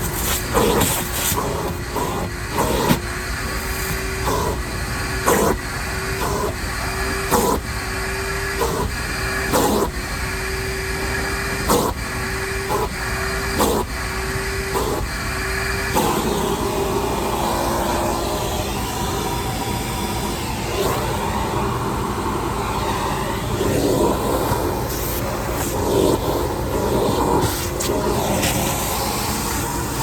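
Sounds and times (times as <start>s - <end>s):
shop vac motor whine: 0.0s - 30.0s.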